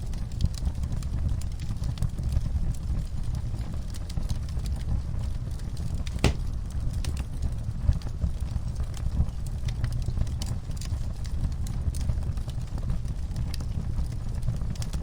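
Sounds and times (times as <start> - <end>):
wood fire crackling: 6.0 - 6.9.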